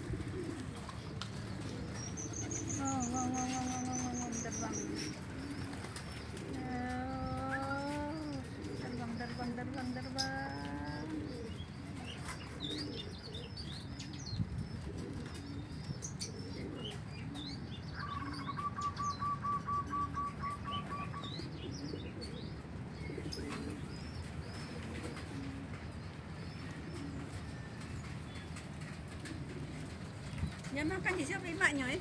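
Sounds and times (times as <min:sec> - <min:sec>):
wings flapping: 0:00.0 - 0:09.2, 0:26.8 - 0:32.0
pigeons cooing: 0:00.0 - 0:32.0
small birds chirping: 0:00.0 - 0:32.0.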